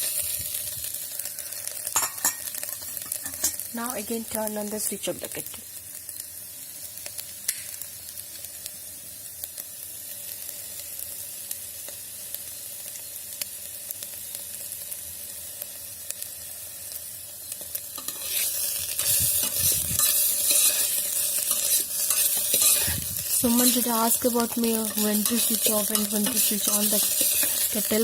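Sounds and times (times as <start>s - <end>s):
egg sizzling in a kettle: 0.0s - 28.0s.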